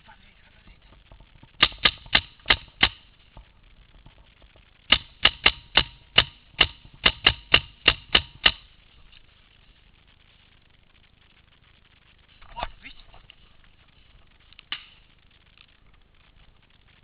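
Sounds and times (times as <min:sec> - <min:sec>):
paintball marker firing: 0:01.1 - 0:08.7.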